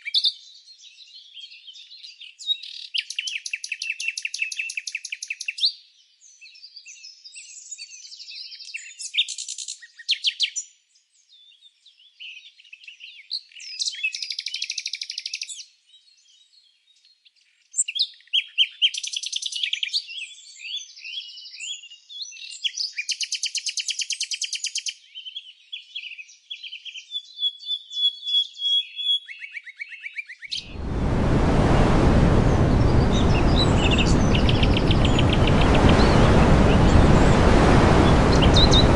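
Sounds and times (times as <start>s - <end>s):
steady rushing noise: 30.6s - 38.9s
songbirds chirping and singing: 33.1s - 36.8s.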